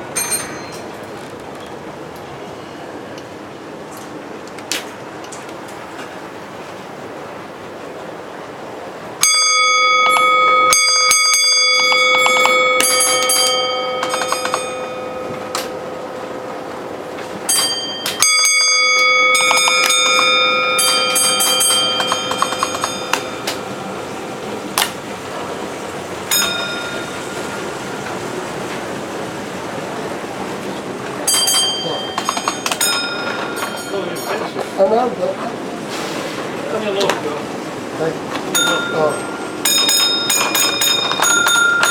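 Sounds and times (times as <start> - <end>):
model trains rumbling: 0.0 - 41.9
bell strokes ringing: 9.2 - 24.6, 26.3 - 28.3, 31.3 - 34.6, 38.5 - 41.9.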